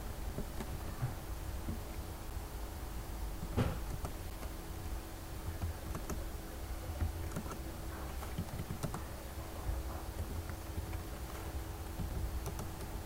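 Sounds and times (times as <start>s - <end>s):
steady low hum: 0.0s - 13.0s
keyboard typing: 5.4s - 6.3s, 6.9s - 9.2s, 12.0s - 13.0s.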